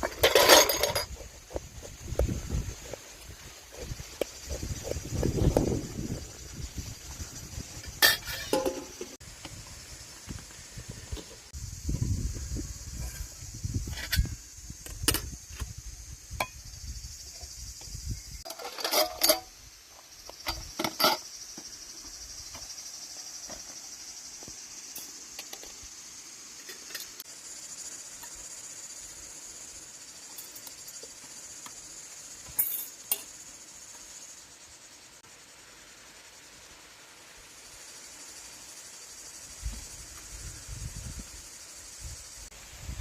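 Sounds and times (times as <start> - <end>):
clinks and knocks: 0.0 - 2.3, 7.8 - 9.2, 18.5 - 19.5, 20.4 - 21.3, 32.4 - 33.3
insects chirring: 0.0 - 43.0.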